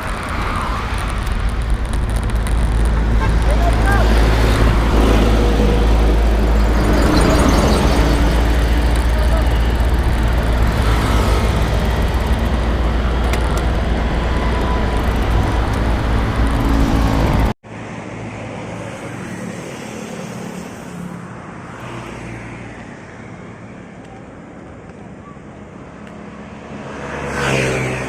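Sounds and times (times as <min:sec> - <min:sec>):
wind rushing over microphone: 0:00.0 - 0:17.6
road and traffic noise: 0:00.0 - 0:28.0.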